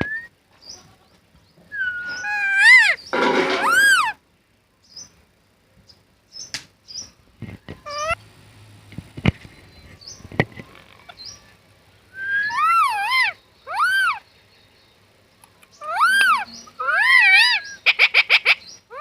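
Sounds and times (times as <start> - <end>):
parrot call: 1.7 - 4.2, 7.8 - 8.2, 12.2 - 14.2, 15.8 - 19.0
parrot chirping: 1.8 - 4.2, 7.8 - 8.2, 12.2 - 14.2, 15.8 - 19.0.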